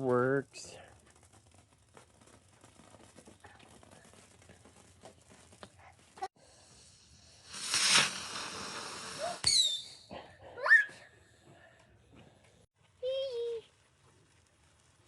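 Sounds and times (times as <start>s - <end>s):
firework hissing spray: 6.5s - 9.8s
firework crack with falling whistle: 7.4s - 10.0s.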